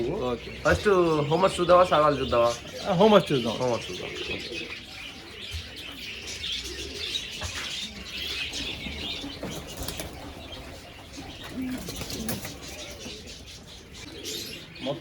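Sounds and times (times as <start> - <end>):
pigeons cooing: 0.0 - 15.0
small birds chirping: 0.0 - 15.0
wing flaps: 11.5 - 12.8.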